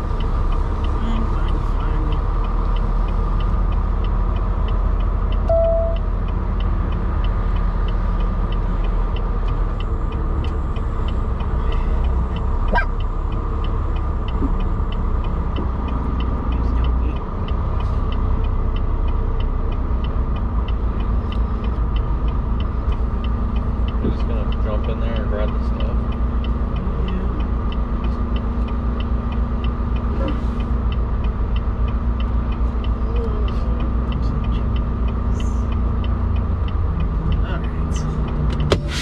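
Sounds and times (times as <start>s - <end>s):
truck engine and road rumble: 0.0s - 39.0s
short beep: 5.4s - 6.0s.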